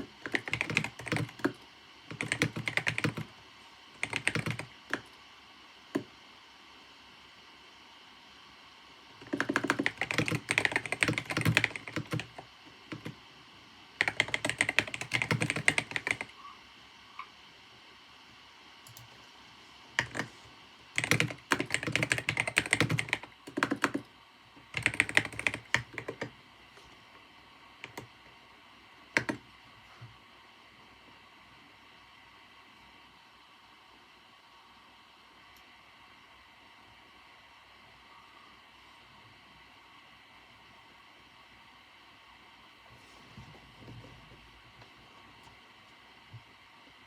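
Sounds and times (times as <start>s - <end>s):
keyboard typing: 0.0s - 3.3s, 4.0s - 5.2s, 9.2s - 13.2s, 14.0s - 16.4s, 18.8s - 19.2s, 20.0s - 20.4s, 21.0s - 26.3s, 27.8s - 28.2s, 29.2s - 29.5s
faint steady hiss: 0.0s - 47.0s.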